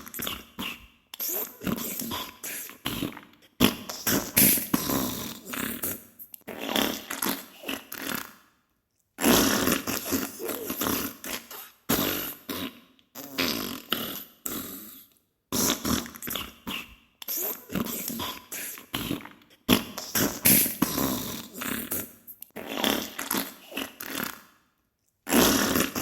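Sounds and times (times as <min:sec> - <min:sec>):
wet sputtering fart noises: 0:00.0 - 0:08.4, 0:09.2 - 0:24.5, 0:25.3 - 0:26.0.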